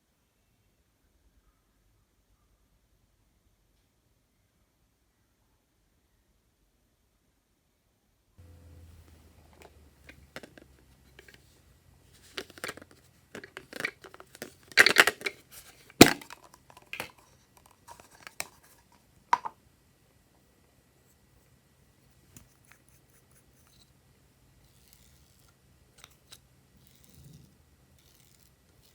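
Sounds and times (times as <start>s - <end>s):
plastic packaging crinkling: 12.2s - 18.8s.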